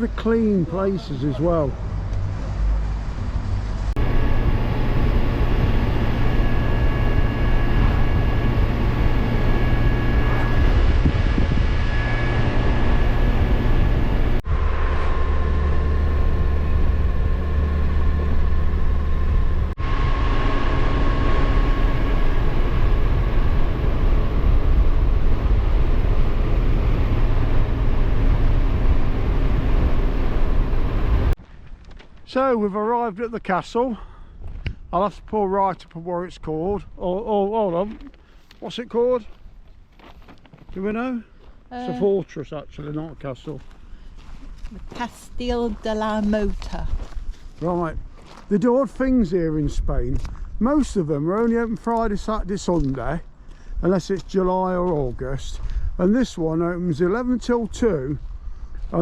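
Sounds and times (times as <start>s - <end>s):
wind and road noise: 0.0s - 32.3s, 34.3s - 59.0s
motorcycle engine drone: 1.8s - 31.4s.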